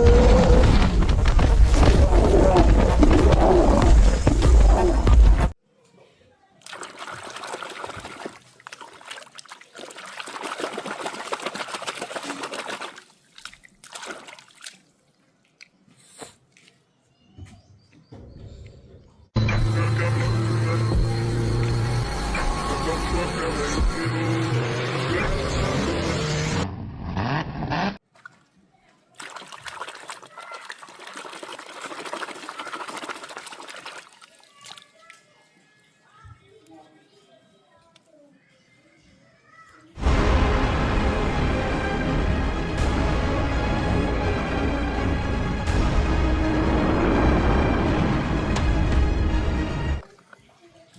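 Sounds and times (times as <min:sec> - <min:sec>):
short water splashes: 0:06.6 - 0:15.8, 0:28.0 - 0:35.4
water trickling over toys: 0:06.6 - 0:15.9, 0:28.2 - 0:36.6, 0:50.0 - 0:50.9
loud music: 0:40.0 - 0:50.0.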